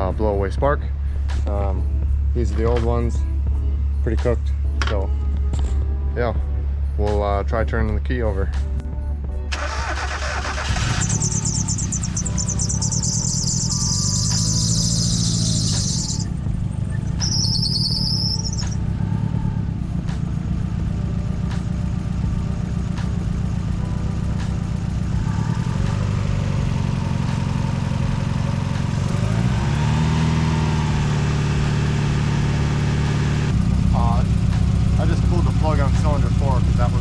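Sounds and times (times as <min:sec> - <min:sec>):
car engine idling and misfiring: 0:09.5 - 0:37.0
shrill high whine: 0:10.6 - 0:19.3.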